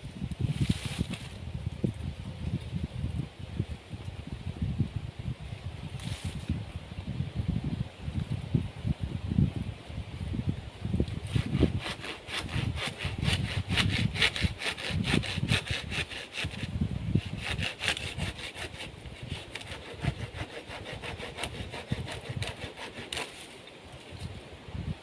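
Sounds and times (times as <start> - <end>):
hand saw cutting wood: 11.2 - 23.6.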